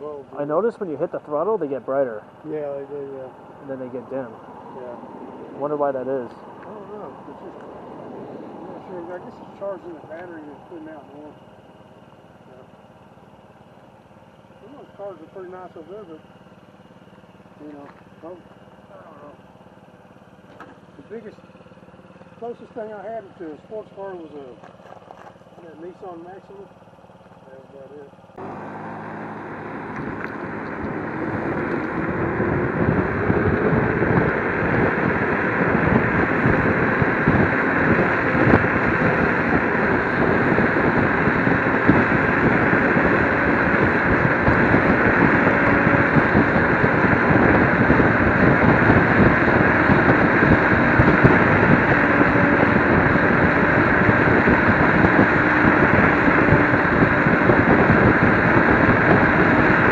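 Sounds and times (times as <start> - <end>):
faint rising whine: 0.0 - 26.7, 27.3 - 59.9
wind rushing over microphone: 4.4 - 10.2, 28.4 - 59.9.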